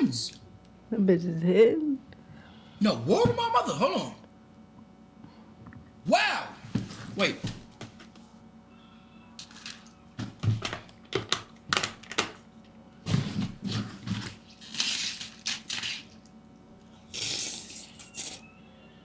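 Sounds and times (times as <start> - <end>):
crunching and chewing cereal: 13.1 - 18.4.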